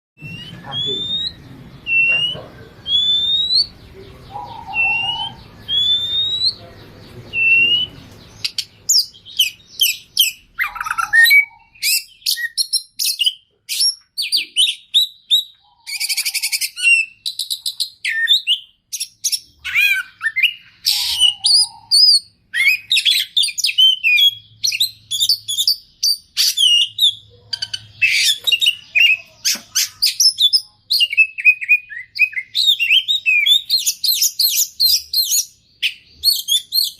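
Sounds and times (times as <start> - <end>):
songbird singing: 0.2 - 36.9.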